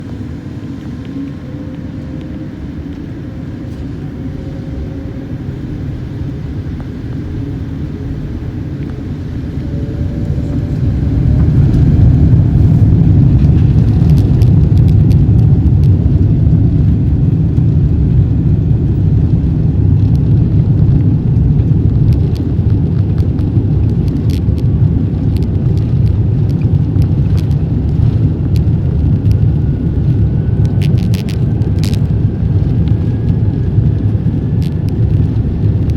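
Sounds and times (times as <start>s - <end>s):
faint rising whine: 0.0s - 35.9s
jet engine and airflow rumble: 0.0s - 35.9s.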